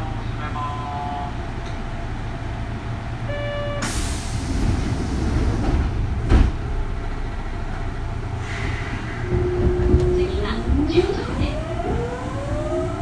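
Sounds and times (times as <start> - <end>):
train low rumble: 0.0 - 13.0
thump: 6.2 - 6.6.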